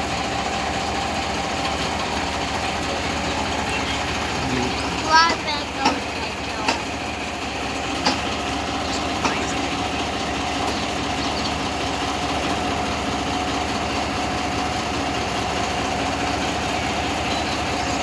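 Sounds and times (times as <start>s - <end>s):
locomotive engine throb: 0.0s - 18.0s.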